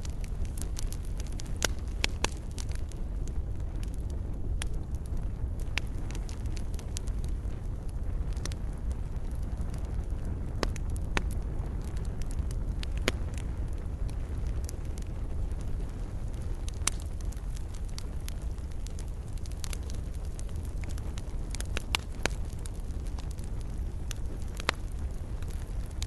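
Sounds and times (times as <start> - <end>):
fireplace fire crackling: 0.0 - 26.0.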